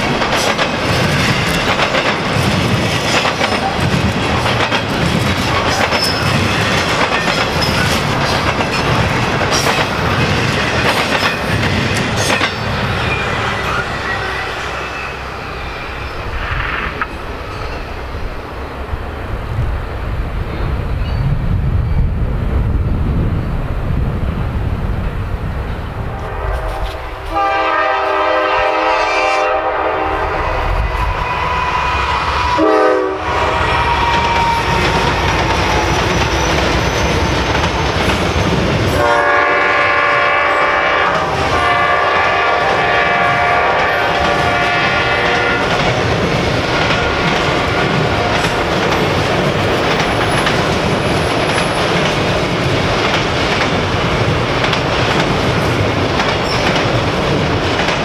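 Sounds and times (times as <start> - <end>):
train wheels clacking over rail joints: 0.0 - 13.8, 33.4 - 58.0
locomotive horn blasts: 26.1 - 30.7, 32.5 - 34.8, 39.0 - 45.7.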